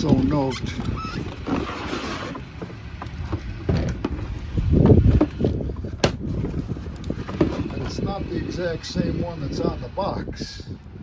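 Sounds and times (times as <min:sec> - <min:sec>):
wind rumble on microphone: 0:00.0 - 0:11.0
coffee maker and box being handled: 0:00.1 - 0:08.0.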